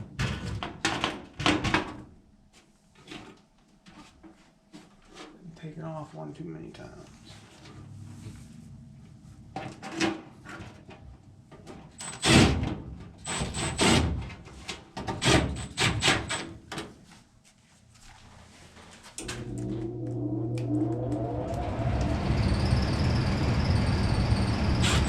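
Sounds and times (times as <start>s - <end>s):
furnace motor humming: 19.2s - 25.0s.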